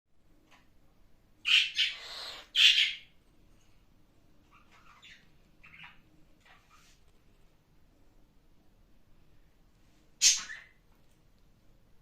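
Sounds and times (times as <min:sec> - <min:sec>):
cockatiel squawking: 0:01.4 - 0:03.1.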